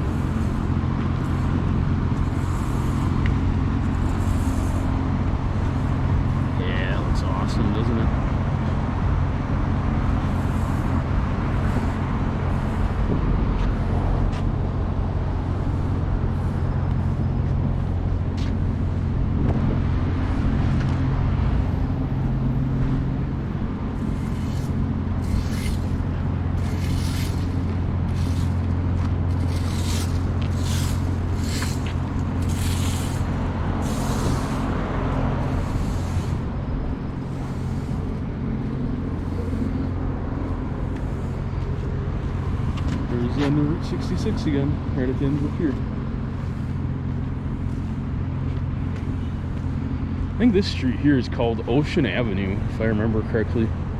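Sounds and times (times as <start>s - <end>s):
passing cars rumbling: 0.0s - 53.9s
short hissing sounds: 29.5s - 34.7s.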